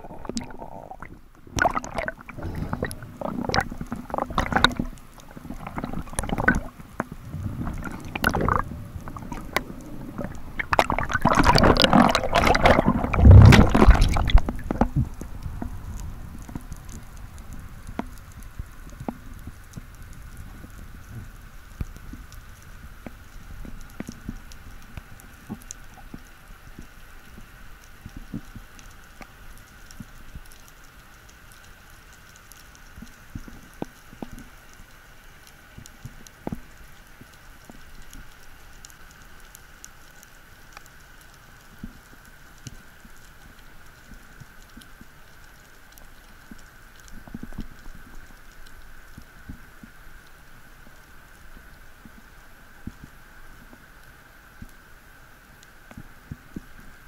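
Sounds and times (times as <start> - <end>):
water sloshing rumbles: 0.0 - 17.4
underwater crackling clicks: 0.0 - 54.8.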